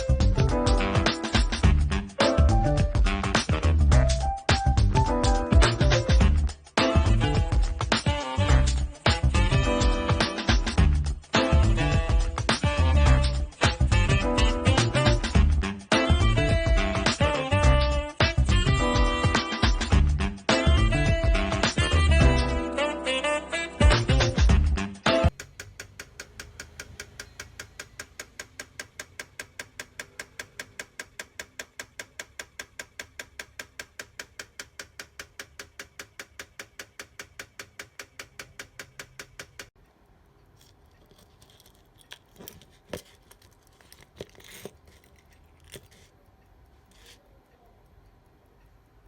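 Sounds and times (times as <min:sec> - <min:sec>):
watch ticking: 0:25.3 - 0:42.4.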